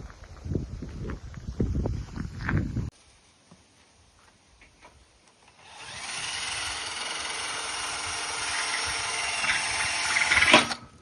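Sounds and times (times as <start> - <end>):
power drill running: 5.5 - 10.9.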